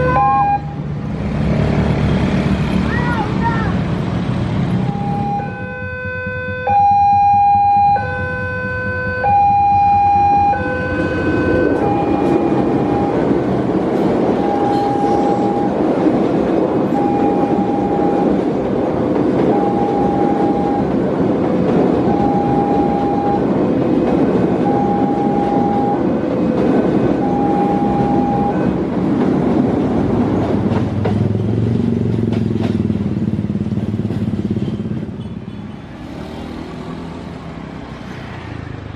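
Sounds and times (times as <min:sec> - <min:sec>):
level crossing warning tones: 0:00.0 - 0:00.8, 0:04.8 - 0:18.6, 0:19.3 - 0:21.1, 0:22.0 - 0:23.8, 0:24.5 - 0:28.8
train passing rumble: 0:00.0 - 0:38.9.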